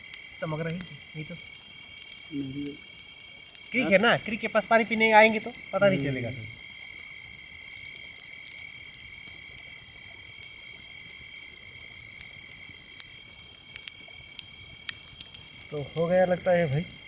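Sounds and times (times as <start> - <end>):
crickets trilling: 0.0 - 17.0
faint clicks: 13.0 - 16.2.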